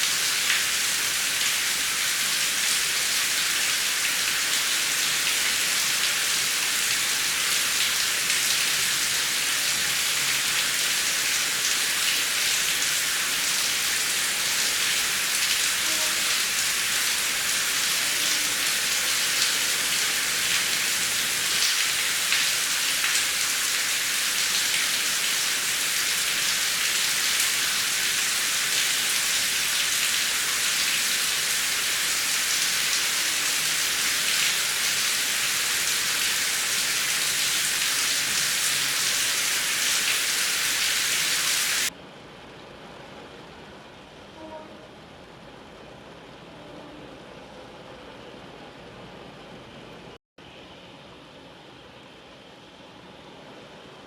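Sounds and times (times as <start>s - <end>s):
heavy rain pattering on a surface: 0.0s - 42.0s.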